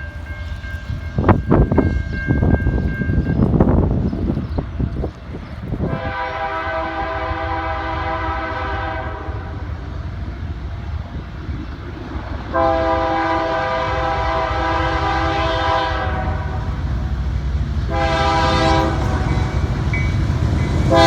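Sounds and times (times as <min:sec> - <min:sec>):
low rumble of passing locomotives: 0:00.0 - 0:21.0
locomotive air horn chord: 0:05.9 - 0:09.6, 0:12.5 - 0:16.8, 0:17.9 - 0:19.8, 0:20.7 - 0:21.0.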